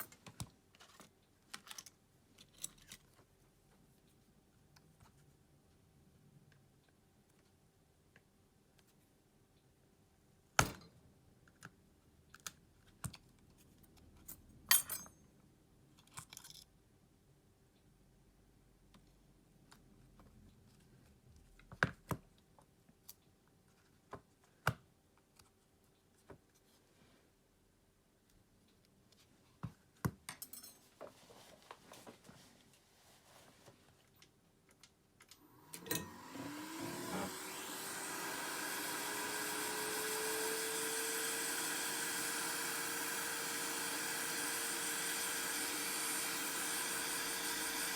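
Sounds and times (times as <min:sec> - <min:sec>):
small tools clicking and tapping: 0:30.1 - 0:30.8.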